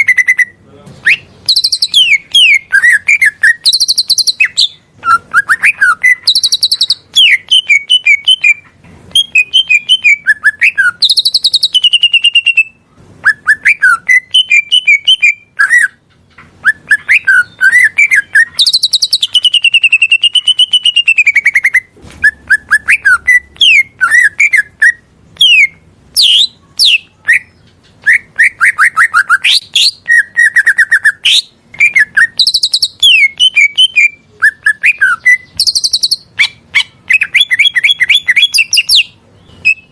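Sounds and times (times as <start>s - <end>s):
bird singing chirps and trills: 0.0s - 39.9s.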